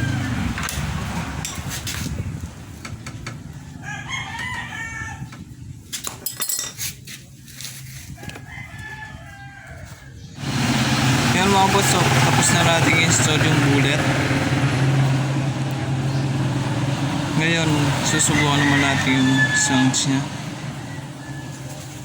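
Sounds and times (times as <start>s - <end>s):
rooster crowing: 0.0s - 0.6s, 3.4s - 5.4s, 8.2s - 10.2s, 17.5s - 22.0s.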